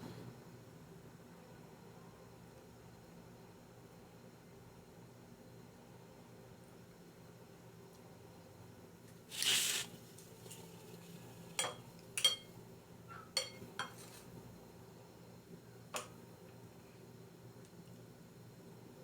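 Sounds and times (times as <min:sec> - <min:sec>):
cutlery scraping a plate: 0:10.5 - 0:12.5, 0:13.3 - 0:14.3
cutlery clinking against a plate: 0:11.5 - 0:12.6, 0:13.2 - 0:14.3.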